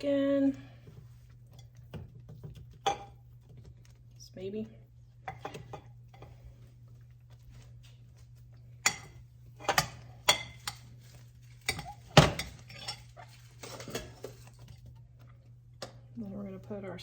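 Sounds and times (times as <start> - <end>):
dishes and utensils clinking: 8.8 - 14.8.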